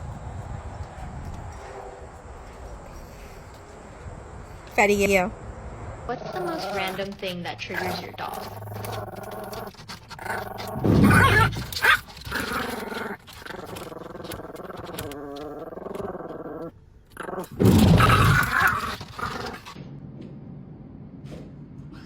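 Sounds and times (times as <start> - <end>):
dog growling and barking: 6.2 - 19.8
dog wavering vocal sounds: 6.2 - 19.8.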